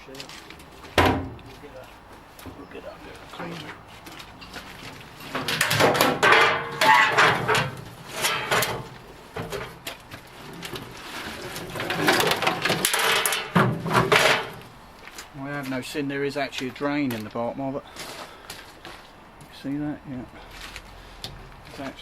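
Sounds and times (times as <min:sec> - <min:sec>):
metal tank clattering and scraping: 0:00.2 - 0:14.8.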